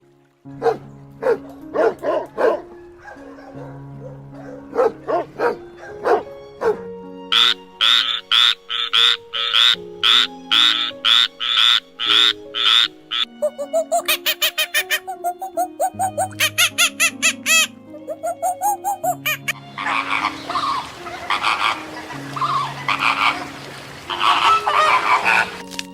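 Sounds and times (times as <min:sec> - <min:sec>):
soft background music: 0:00.0 - 0:25.9
animal yelps: 0:00.6 - 0:25.6
loud harsh animal calls: 0:07.3 - 0:25.6
rapid chirping: 0:07.4 - 0:21.8.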